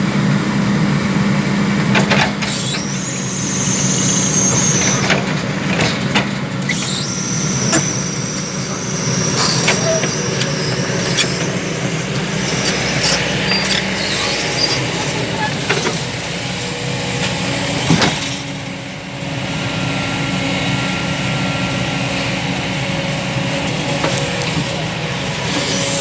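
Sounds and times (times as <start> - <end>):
heavy vehicle low drone: 0.0 - 26.0
high-pitched squeal: 2.5 - 5.2, 6.7 - 18.6.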